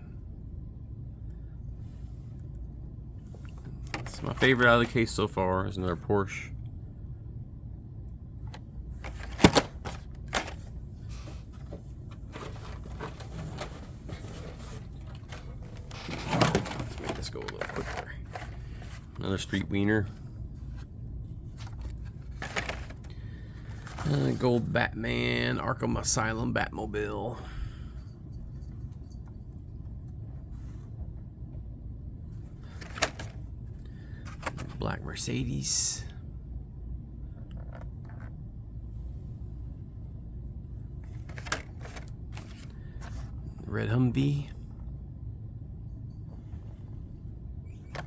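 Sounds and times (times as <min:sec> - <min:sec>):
low background rumble: 0:00.0 - 0:48.0
cardboard and plastic rustling: 0:03.4 - 0:05.2, 0:09.0 - 0:24.8, 0:32.6 - 0:33.5, 0:34.3 - 0:34.8, 0:41.0 - 0:43.5, 0:47.7 - 0:48.0.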